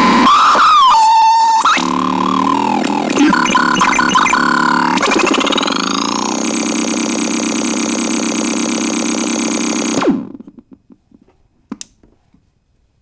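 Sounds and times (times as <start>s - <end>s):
harsh synthesizer buzz: 0.0s - 10.4s.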